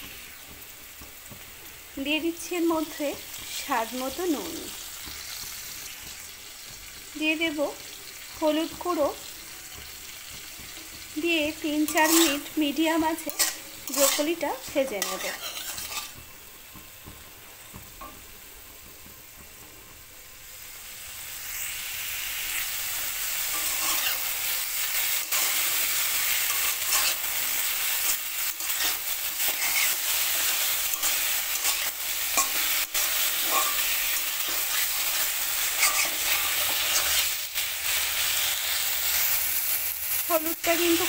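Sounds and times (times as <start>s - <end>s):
vegetables sizzling in oil: 0.0s - 41.0s
metal spatula scraping: 8.9s - 16.3s, 21.5s - 39.5s.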